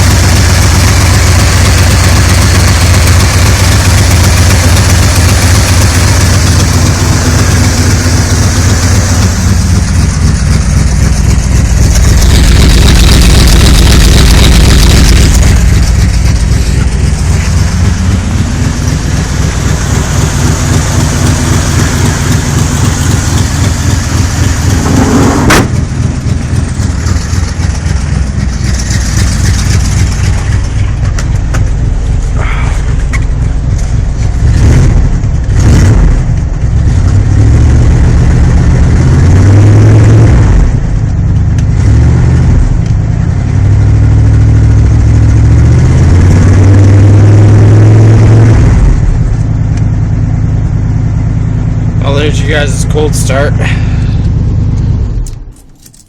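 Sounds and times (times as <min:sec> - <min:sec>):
pickup truck engine running: 0:00.0 - 0:56.0.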